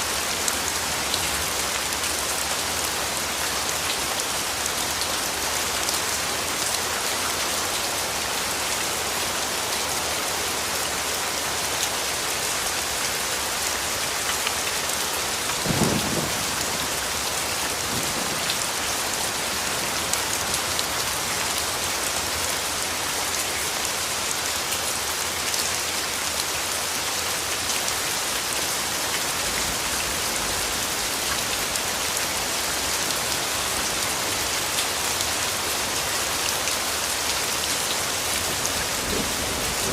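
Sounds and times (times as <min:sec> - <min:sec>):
rain on leaves: 0:00.0 - 0:39.9
low rumble of thunder: 0:15.6 - 0:18.9, 0:38.5 - 0:39.9.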